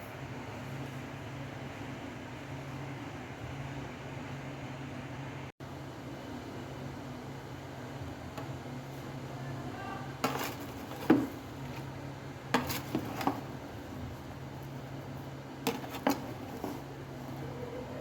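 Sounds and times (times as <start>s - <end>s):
dishes and utensils clanking: 12.6s - 13.5s, 15.7s - 16.9s.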